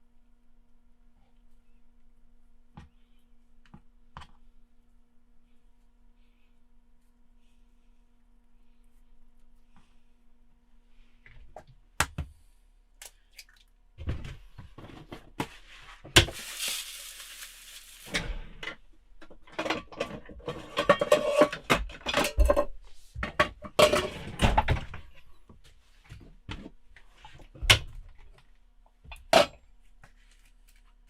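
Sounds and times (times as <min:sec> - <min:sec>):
pots and pans clattering: 0:19.4 - 0:25.0.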